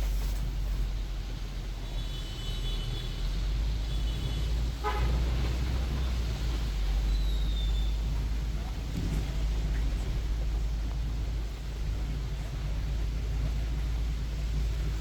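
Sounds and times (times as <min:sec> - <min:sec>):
street traffic rumble: 0:00.0 - 0:15.0
vehicle horns beeping: 0:01.8 - 0:03.2, 0:03.9 - 0:05.5.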